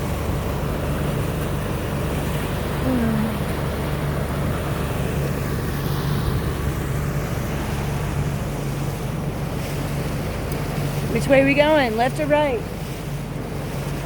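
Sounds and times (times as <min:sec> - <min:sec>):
boat motor humming: 0:00.0 - 0:14.0
water noise: 0:00.0 - 0:14.0
wind: 0:00.0 - 0:14.0.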